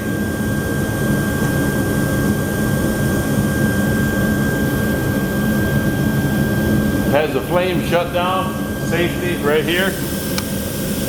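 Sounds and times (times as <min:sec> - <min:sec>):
thin high whine: 0:00.0 - 0:11.0
oil burner rushing: 0:04.6 - 0:11.0.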